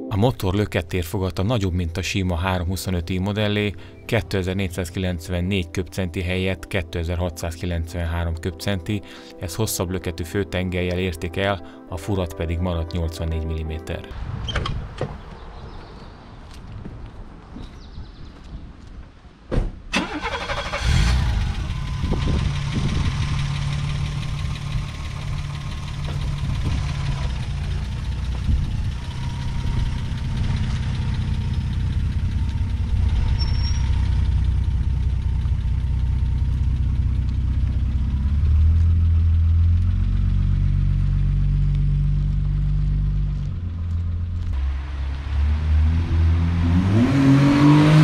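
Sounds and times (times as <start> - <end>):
car engine starting and idling: 19.9 - 48.0.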